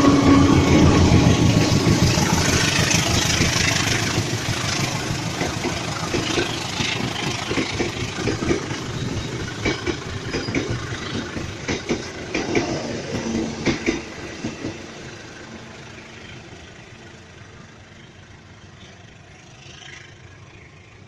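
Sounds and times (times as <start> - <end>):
train wheels clacking over rail joints: 0.0 - 16.4
diesel locomotive engine rumble: 0.0 - 21.0.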